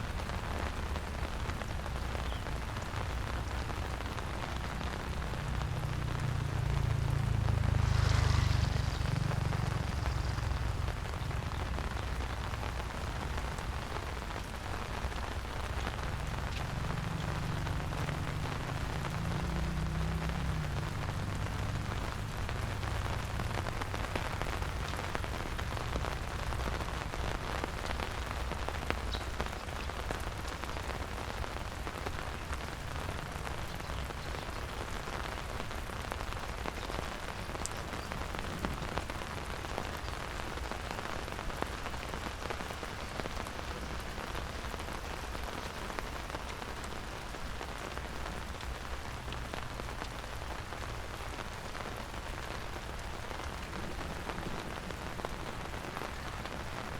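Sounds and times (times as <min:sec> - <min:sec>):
rain patter: 0:00.0 - 0:56.9
low rumble: 0:04.6 - 0:13.5.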